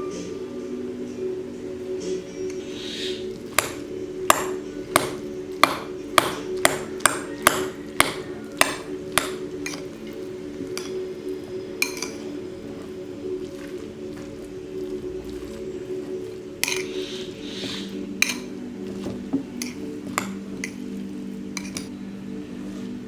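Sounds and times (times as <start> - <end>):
soft background music: 0.0 - 23.0.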